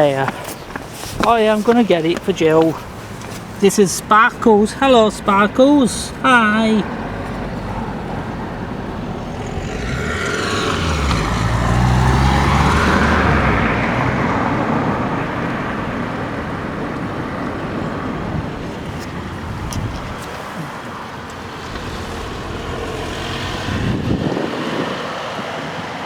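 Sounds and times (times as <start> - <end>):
vehicle passing: 0.0 - 26.0.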